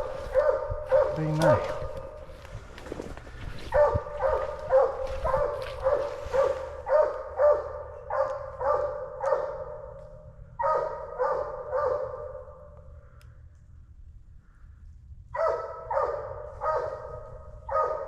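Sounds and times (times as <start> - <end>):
dog barking: 0.0 - 2.1, 3.6 - 12.7, 15.3 - 18.0.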